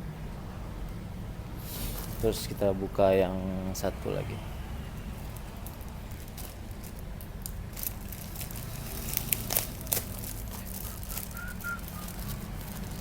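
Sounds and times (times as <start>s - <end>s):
packaging crinkling: 5.2s - 13.0s.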